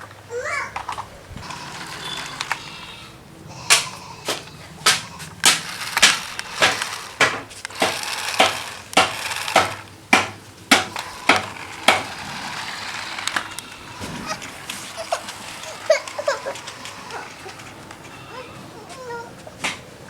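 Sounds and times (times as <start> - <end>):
sharp knocks: 3.6 - 15.0.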